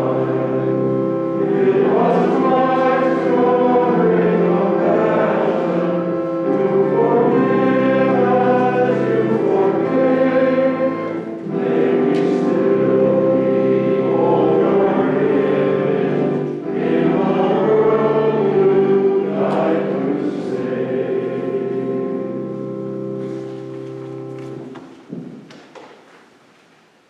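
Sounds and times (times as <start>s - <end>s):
choir singing a hymn: 0.0s - 24.7s.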